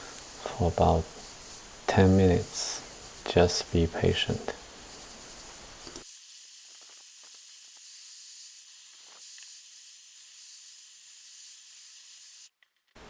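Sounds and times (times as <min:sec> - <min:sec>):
faint steady hiss: 0:00.0 - 0:13.0
soft light clicks: 0:05.8 - 0:06.0.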